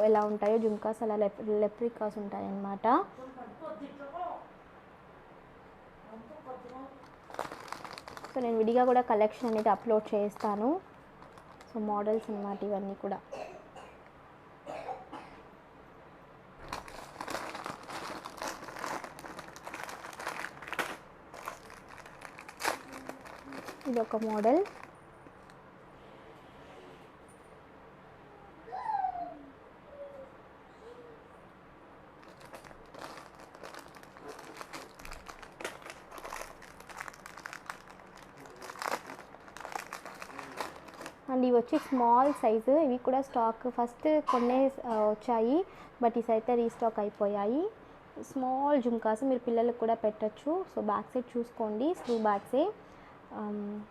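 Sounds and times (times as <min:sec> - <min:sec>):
packaging crinkling: 0:07.0 - 0:12.4, 0:16.6 - 0:25.6, 0:32.2 - 0:41.3.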